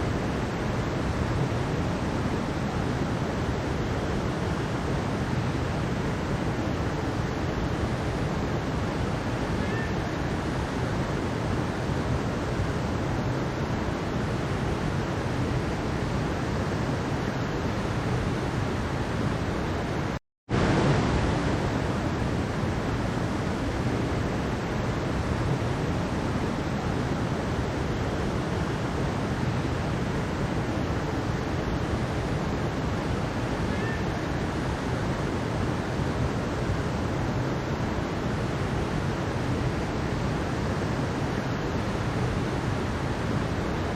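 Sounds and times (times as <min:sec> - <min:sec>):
water rushing over rocks: 0:00.0 - 0:43.9.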